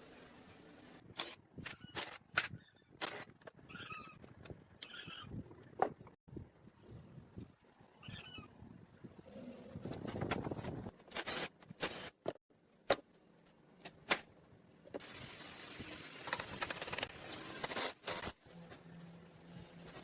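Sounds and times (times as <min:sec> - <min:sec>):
steady hiss: 0:15.0 - 0:18.2.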